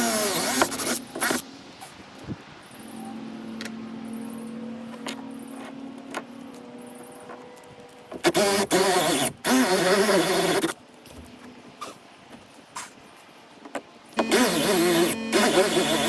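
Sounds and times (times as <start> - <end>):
small electric motor humming: 8.3 - 10.7, 14.2 - 16.0.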